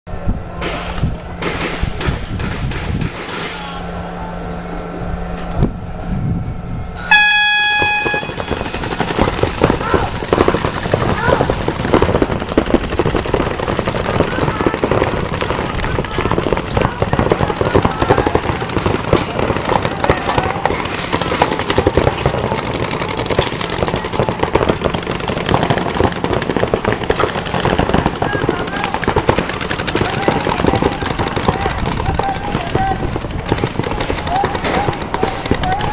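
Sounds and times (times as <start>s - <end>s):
dense rapid popping: 7.6s - 35.9s
people shouting: 7.8s - 11.6s, 13.4s - 24.6s, 27.3s - 35.9s.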